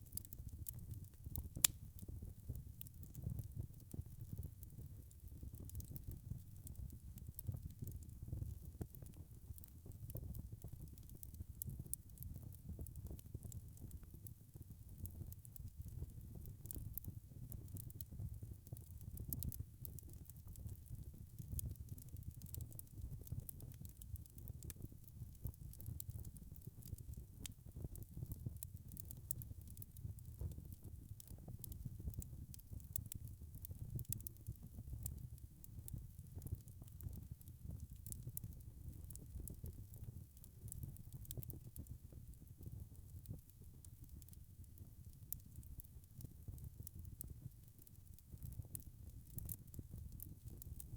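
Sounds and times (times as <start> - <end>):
wood fire crackling and popping: 0.0 - 50.9.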